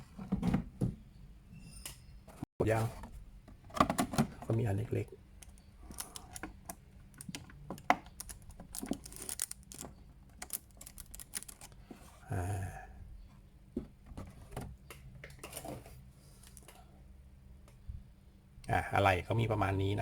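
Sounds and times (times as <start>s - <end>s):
plastic toy parts clicking and rattling: 5.4s - 11.8s
plastic packaging crinkle: 8.1s - 11.8s.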